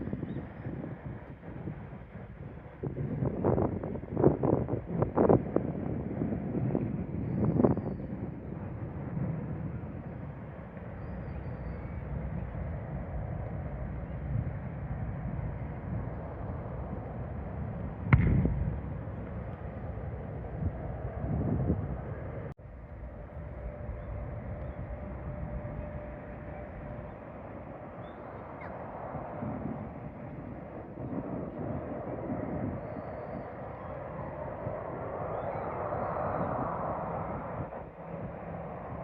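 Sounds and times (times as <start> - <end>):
low outdoor rumble: 0.0 - 39.0
wind on microphone: 0.0 - 39.0
faint steady hum: 8.6 - 31.0.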